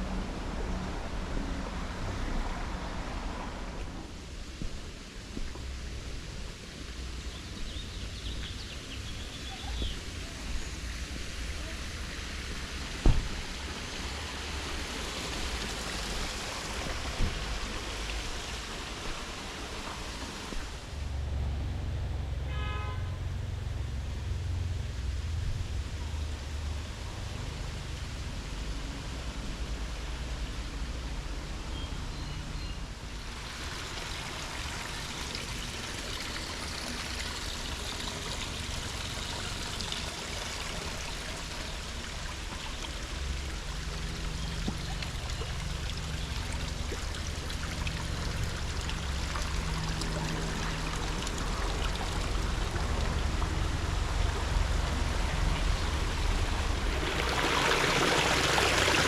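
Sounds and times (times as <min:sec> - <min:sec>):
small stream trickling: 0:00.0 - 0:59.0
low steady rumble: 0:20.5 - 0:31.7, 0:33.0 - 0:59.0.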